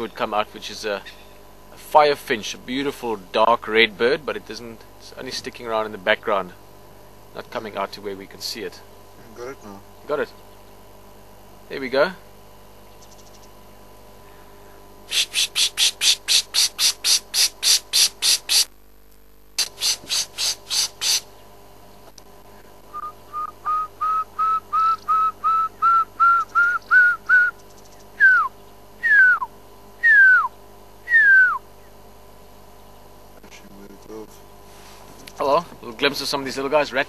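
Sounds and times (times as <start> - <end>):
bird harsh repeated notes: 15.1 - 18.7, 19.6 - 21.3
bird short rising whistles: 22.9 - 27.6, 28.2 - 31.6
bird slurred falling whistles: 22.9 - 27.6, 28.2 - 31.6.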